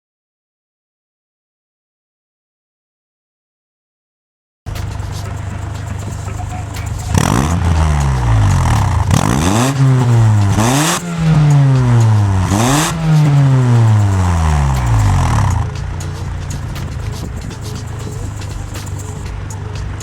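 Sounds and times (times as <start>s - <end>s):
car engine revving: 4.7s - 20.0s.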